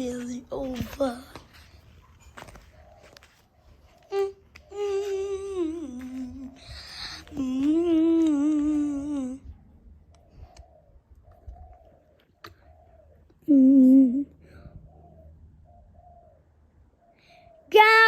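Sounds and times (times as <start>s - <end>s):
woman humming: 4.1s - 9.5s, 13.4s - 14.4s.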